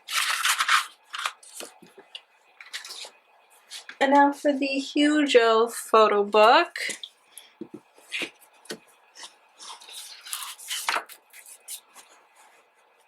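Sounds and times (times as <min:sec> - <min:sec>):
paper and card rustling: 0:00.0 - 0:02.0, 0:02.6 - 0:04.0, 0:09.2 - 0:12.8.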